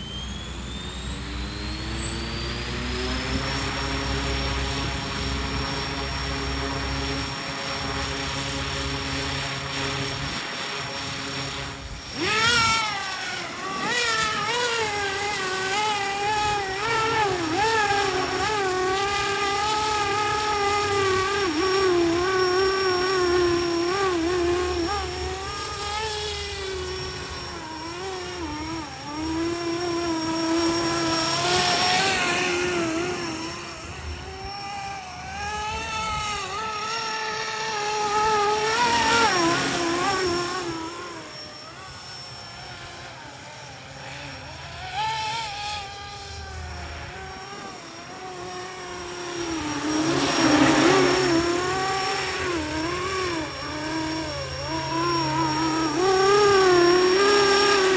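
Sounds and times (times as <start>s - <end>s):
model helicopter motor whining: 0.0s - 57.9s.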